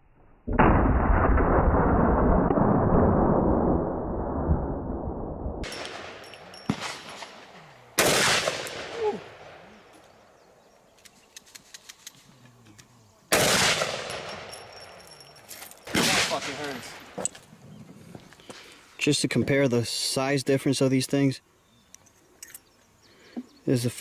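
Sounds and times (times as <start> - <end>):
heavy pistol shots with echo: 5.6 - 10.0, 13.3 - 15.0, 15.9 - 17.2.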